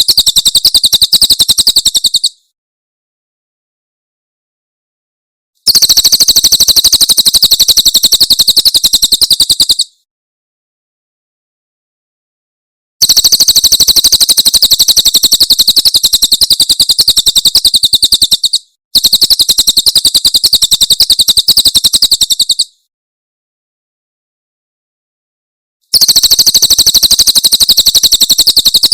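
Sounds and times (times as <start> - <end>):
bird trilling rapidly: 0.0 - 2.4, 5.7 - 10.0, 13.0 - 22.8, 25.9 - 28.9.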